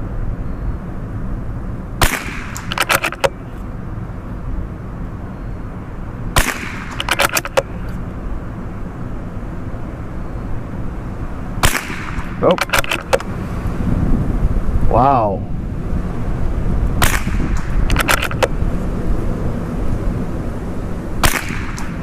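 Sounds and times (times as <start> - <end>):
wind buffeting microphone: 0.0 - 22.0
rifle shots: 2.0 - 3.4, 6.4 - 7.9, 11.6 - 13.2, 17.0 - 18.5, 21.2 - 22.0
rifle bolt clicks: 2.5 - 3.4, 6.4 - 8.0, 11.7 - 13.2, 17.6 - 18.5.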